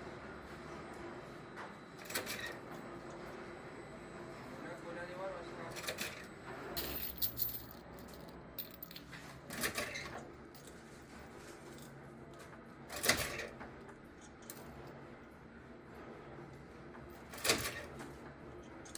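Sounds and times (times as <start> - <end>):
sharp clinks and rattles: 6.8 - 9.1.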